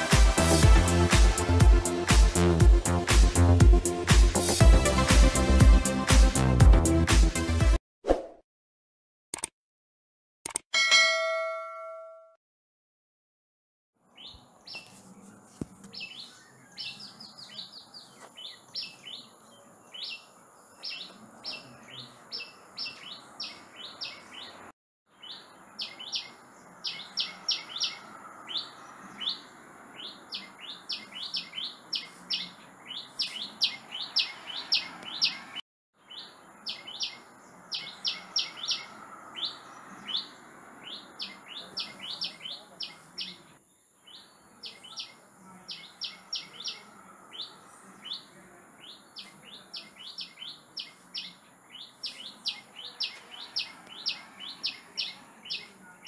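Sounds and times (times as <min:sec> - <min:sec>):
songbird chirping: 0:14.0 - 0:56.0.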